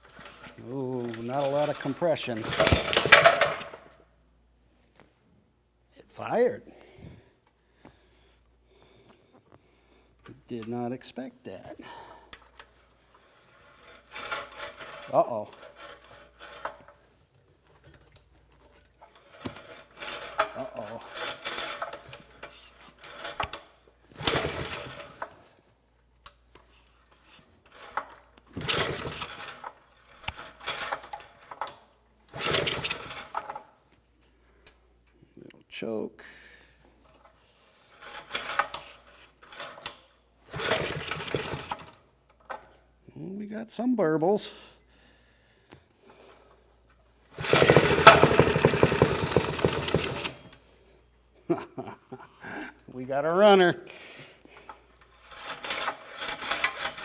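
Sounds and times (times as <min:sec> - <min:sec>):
recoil starter cranking pulls: 0:00.0 - 0:04.0, 0:12.3 - 0:17.0, 0:17.8 - 0:25.4, 0:26.7 - 0:33.6, 0:37.8 - 0:42.6, 0:47.3 - 0:50.7, 0:54.6 - 0:57.0.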